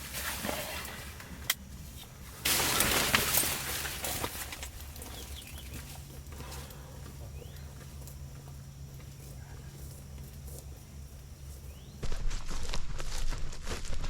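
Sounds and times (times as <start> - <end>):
crackling rustling noise: 0.0 - 6.8, 7.8 - 14.0.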